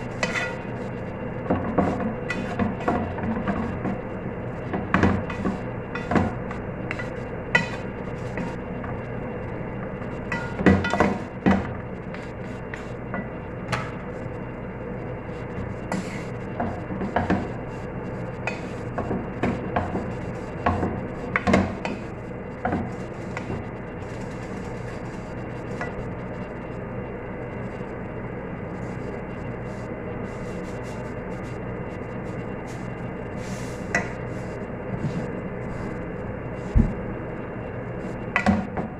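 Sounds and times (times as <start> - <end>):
steady low hum: 0.0 - 38.9
utensil scraping and clinking cookware: 0.2 - 0.6, 6.9 - 8.5.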